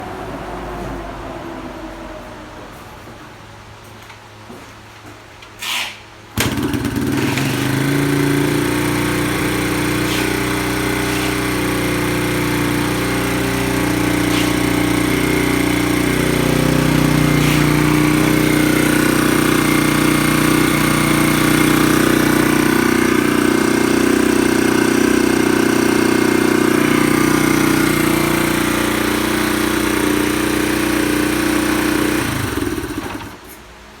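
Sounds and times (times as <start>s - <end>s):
motorcycle engine idling: 6.4s - 33.4s.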